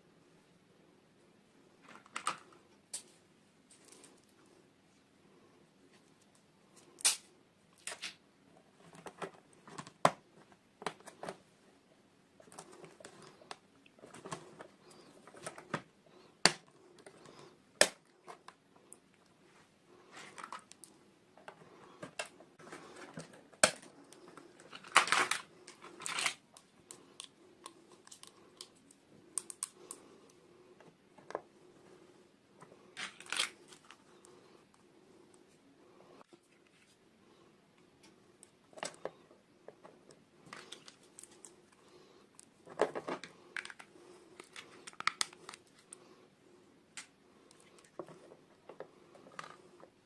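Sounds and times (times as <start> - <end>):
plastic packaging clicks and rustles: 21.5 - 30.0, 33.0 - 34.0, 42.4 - 46.0.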